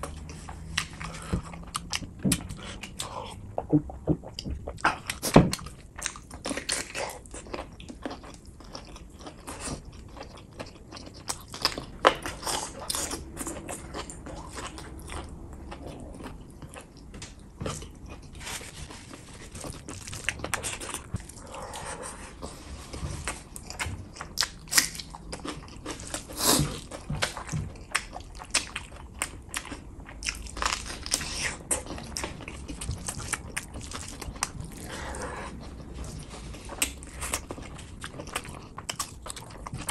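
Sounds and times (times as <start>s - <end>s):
chewing and lip-smacking: 0.0s - 22.5s, 23.2s - 39.9s.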